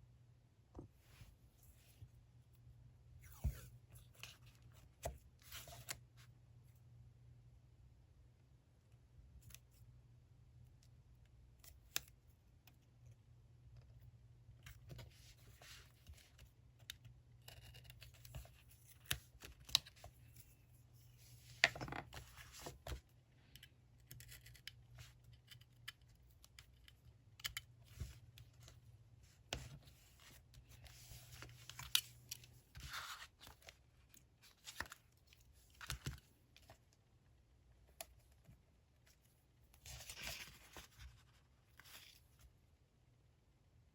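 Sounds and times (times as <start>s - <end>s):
paper rustling: 39.8s - 42.2s.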